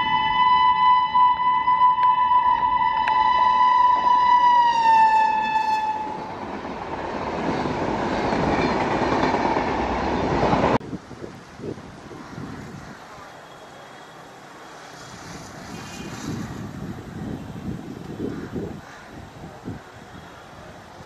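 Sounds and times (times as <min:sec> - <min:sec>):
train horn blast: 0:00.0 - 0:06.3
train wheels on rails: 0:03.0 - 0:21.0.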